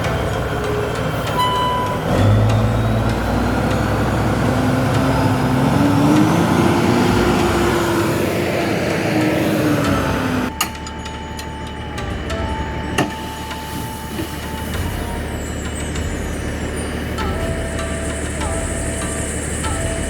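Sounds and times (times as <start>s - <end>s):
truck engine running under load: 0.0s - 20.0s
short beep: 1.3s - 2.4s.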